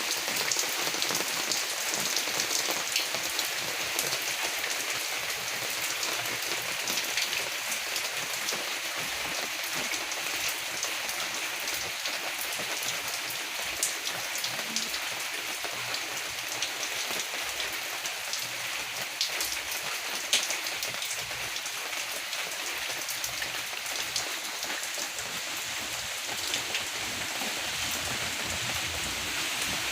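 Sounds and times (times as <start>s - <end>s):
raindrops ticking: 13.8s - 15.0s
rain hissing: 23.0s - 29.9s.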